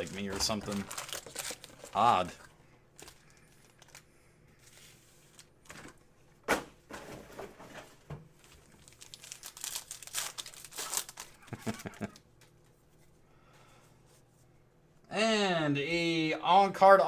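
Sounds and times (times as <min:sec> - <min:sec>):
foil wrapper crinkling: 0:00.0 - 0:06.0, 0:08.4 - 0:12.8.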